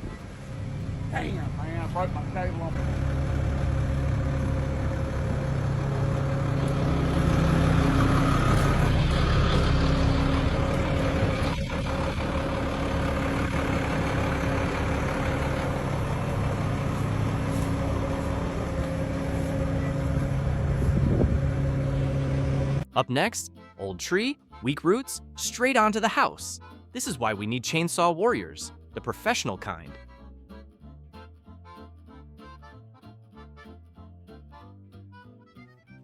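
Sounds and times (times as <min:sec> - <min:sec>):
heavy truck engine running: 0:00.0 - 0:23.3.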